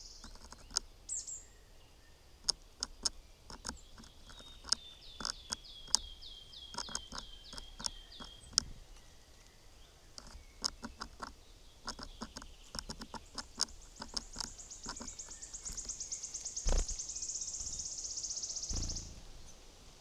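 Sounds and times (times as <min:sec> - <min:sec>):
birds pecking taps: 0:00.2 - 0:00.9, 0:02.4 - 0:09.1, 0:10.1 - 0:17.0
small bird high trill: 0:14.5 - 0:19.6.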